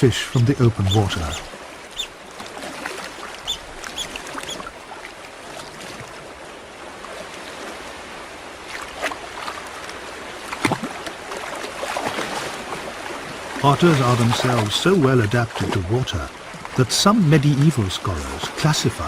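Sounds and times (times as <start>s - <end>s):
otters splashing in water: 0.0s - 4.8s, 13.5s - 18.7s.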